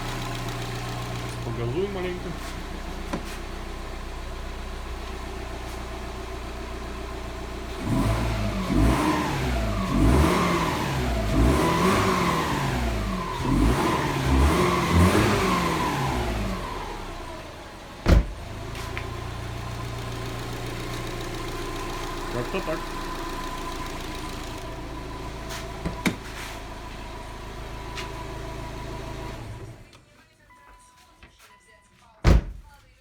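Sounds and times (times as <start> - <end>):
car engine idling and revving: 0.0 - 30.0
person talking: 1.4 - 2.7, 22.3 - 22.9.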